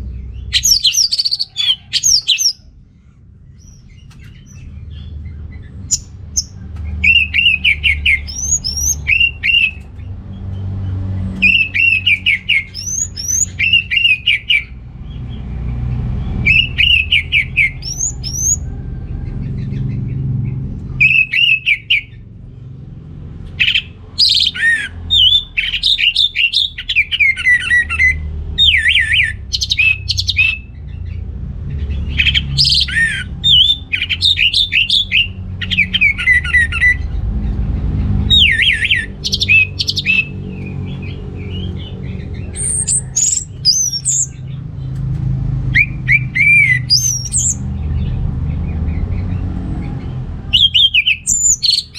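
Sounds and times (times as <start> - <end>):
thrush singing: 0.0 - 2.6, 5.8 - 9.9, 11.2 - 15.5, 16.2 - 18.7, 21.0 - 22.2, 23.5 - 31.2, 31.8 - 44.5, 50.4 - 51.9
low background rumble: 0.0 - 51.9.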